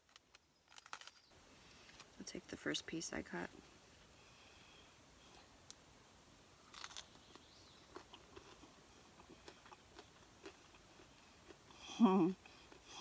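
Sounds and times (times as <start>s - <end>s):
quiet chewing with crunches: 6.6s - 13.0s
bite into crispy crust: 6.7s - 8.6s.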